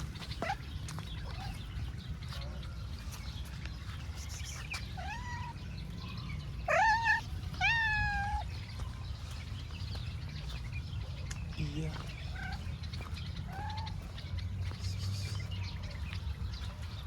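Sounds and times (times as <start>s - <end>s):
cat meowing: 4.9s - 5.7s, 6.6s - 8.5s.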